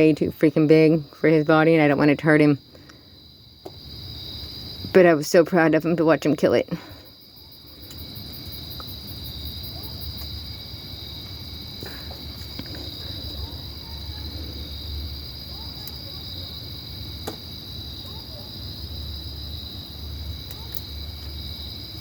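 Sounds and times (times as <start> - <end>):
faint clicks: 15.8 - 16.0, 20.4 - 21.3.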